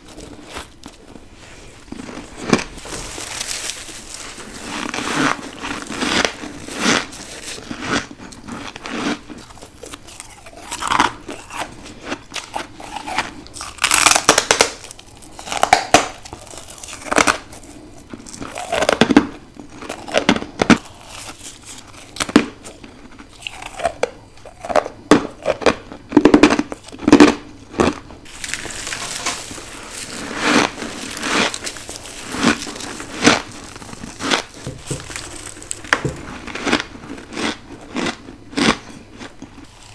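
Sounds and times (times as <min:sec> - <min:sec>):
crisp crunches of frost: 0:28.3 - 0:36.0.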